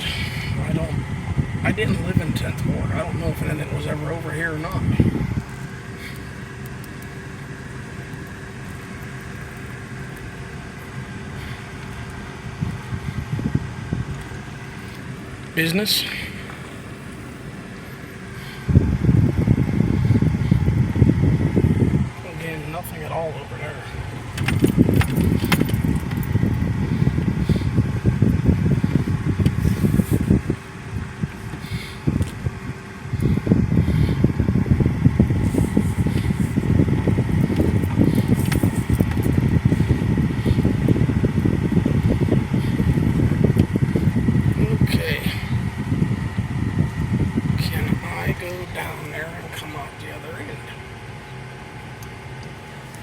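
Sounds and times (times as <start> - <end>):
car engine drone: 0.0 - 53.0
road noise: 0.0 - 53.0
light clicks and rattles: 24.2 - 26.6.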